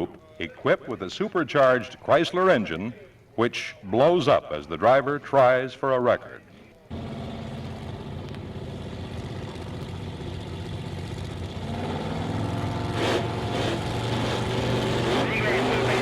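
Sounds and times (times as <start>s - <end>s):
drag car engine idling: 6.9s - 11.7s
engine sharp burst: 6.9s - 16.0s.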